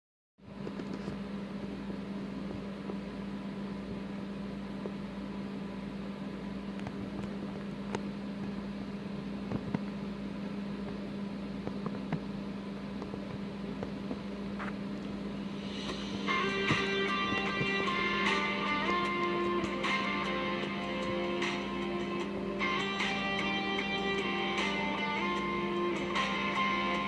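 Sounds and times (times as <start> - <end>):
electrical hum: 0.4 - 27.0
steady hiss: 15.3 - 27.0.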